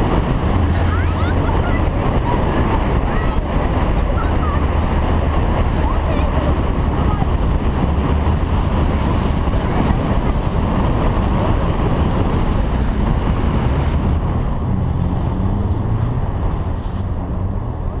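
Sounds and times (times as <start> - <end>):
car engine running: 0.0 - 14.2
wind noise on microphone: 0.0 - 18.0.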